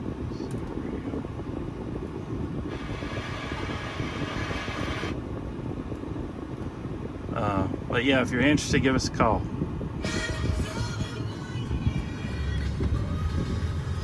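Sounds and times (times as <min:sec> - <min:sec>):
diesel engine idling: 0:01.2 - 0:05.6, 0:10.2 - 0:14.0.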